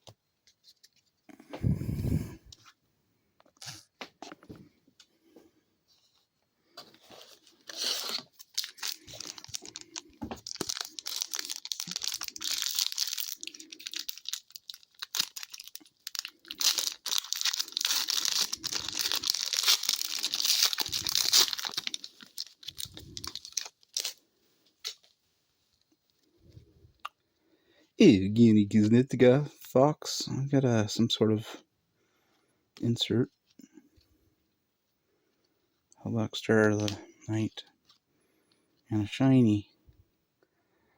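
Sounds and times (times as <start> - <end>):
wrapper crackling and tearing: 7.2 - 24.2.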